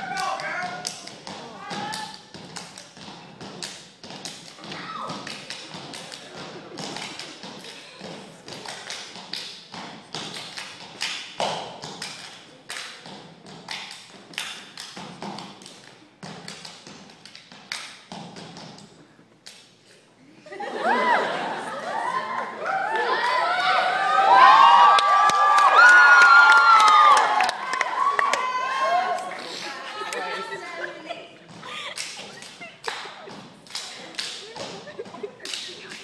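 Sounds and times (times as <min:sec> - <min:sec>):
dancers stomping and clapping: 0:00.0 - 0:15.7, 0:22.9 - 0:29.3, 0:31.4 - 0:36.0.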